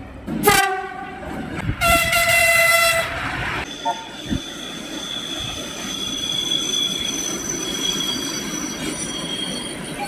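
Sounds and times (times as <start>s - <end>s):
rolling train rumble: 0.0s - 10.0s
train wheels squealing: 3.6s - 10.0s.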